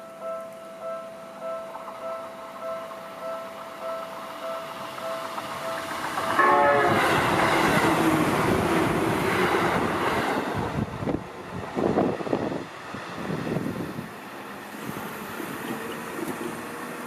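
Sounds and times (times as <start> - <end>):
electric train passing: 0.0 - 17.0
train horn tone: 3.9 - 7.9.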